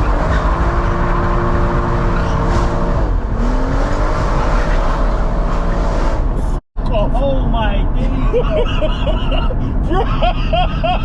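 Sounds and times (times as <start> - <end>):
car engine accelerating hard: 0.0 - 6.6.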